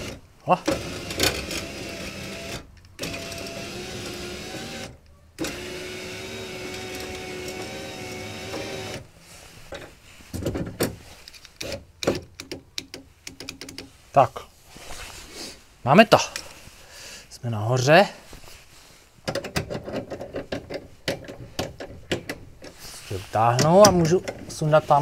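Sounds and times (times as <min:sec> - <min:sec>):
door handling clicks and knocks: 0:11.6 - 0:13.9, 0:19.2 - 0:22.7.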